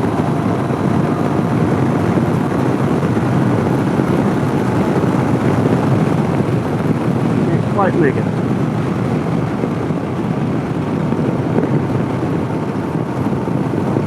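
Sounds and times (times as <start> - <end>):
motorcycle engine running: 0.0 - 14.0
wind rush on microphone: 0.0 - 14.0.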